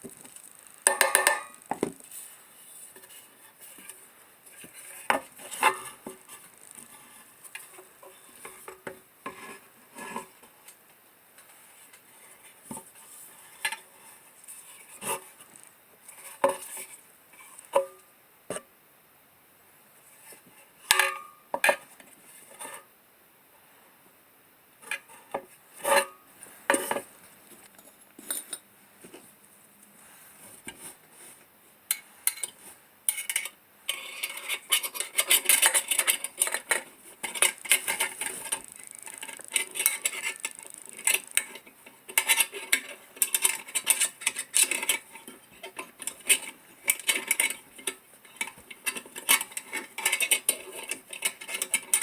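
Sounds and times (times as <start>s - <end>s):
metal scraping: 33.2s - 45.4s.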